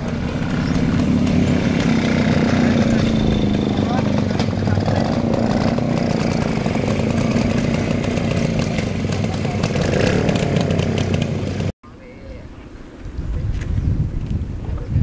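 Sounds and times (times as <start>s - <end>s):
motorcycle engine buzzing exhaust: 0.0s - 11.7s.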